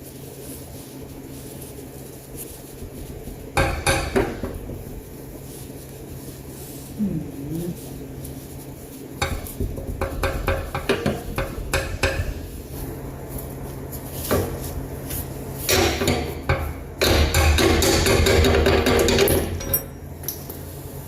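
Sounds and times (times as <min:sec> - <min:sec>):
metal tools clinking: 0:19.6 - 0:20.0.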